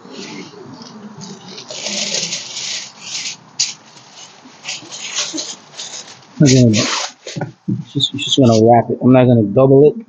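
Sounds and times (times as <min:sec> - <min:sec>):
wrapping material crinkling: 0:00.1 - 0:07.4.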